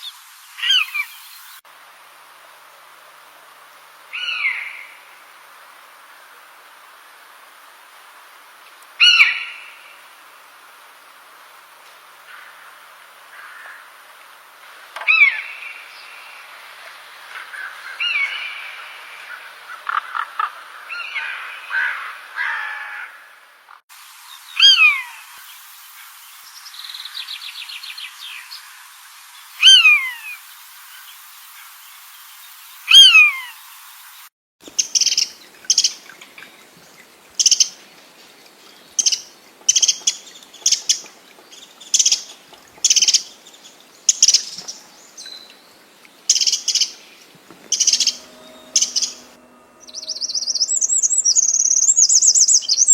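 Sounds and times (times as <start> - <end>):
bird warbling chattering song: 32.9 - 36.2, 36.9 - 37.8, 38.9 - 45.5, 46.3 - 52.9
loud falling bird calls: 46.3 - 52.9
bird trill: 47.6 - 52.9.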